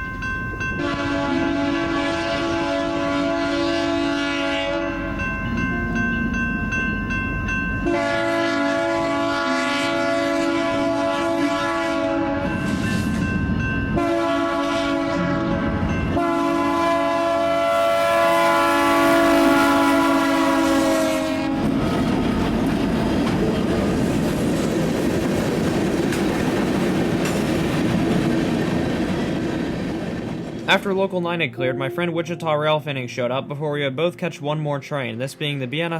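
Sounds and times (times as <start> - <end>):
rumble of passing train: 0.0 - 31.3
locomotive air horn blasts: 0.8 - 5.1, 7.8 - 12.8, 14.0 - 22.0.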